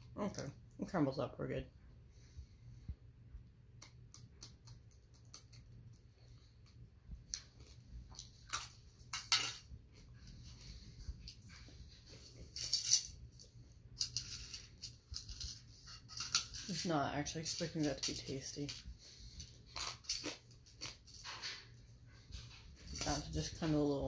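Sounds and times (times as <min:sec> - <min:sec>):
chewing and crunching: 0:04.3 - 0:09.3, 0:19.3 - 0:23.6.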